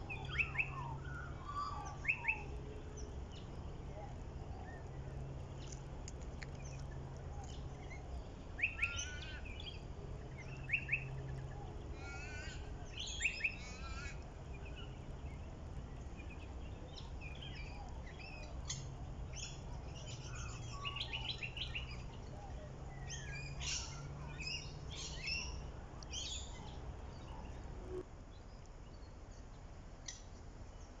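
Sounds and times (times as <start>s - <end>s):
low background hum: 0.0s - 31.0s
birds chirping and calling: 0.1s - 2.6s, 6.6s - 15.1s, 16.0s - 27.6s.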